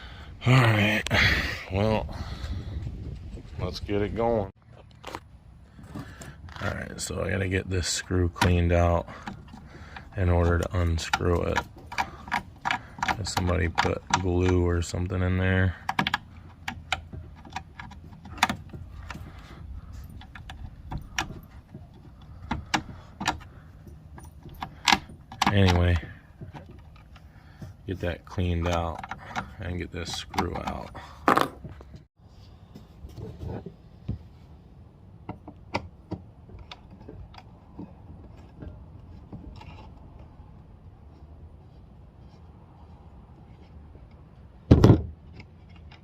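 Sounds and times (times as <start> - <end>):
hand tool clicking and scraping: 8.3 - 32.1
screwdriver clicking and scraping: 8.4 - 14.6.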